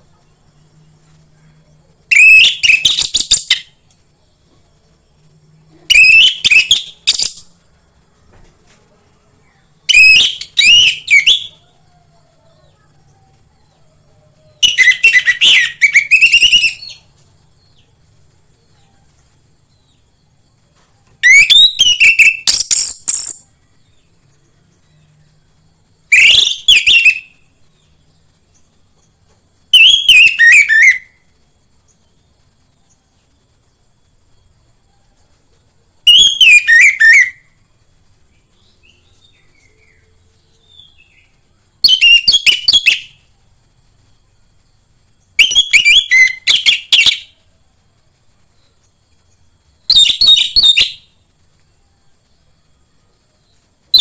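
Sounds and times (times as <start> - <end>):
faint high hiss: 0.0 - 54.0
thrush singing whistled phrases: 2.1 - 3.8, 5.8 - 7.5, 9.8 - 11.6, 14.6 - 17.1, 21.2 - 23.4, 26.1 - 27.5, 29.7 - 31.2, 36.0 - 37.6, 40.7 - 43.3, 45.4 - 47.4, 49.9 - 51.2.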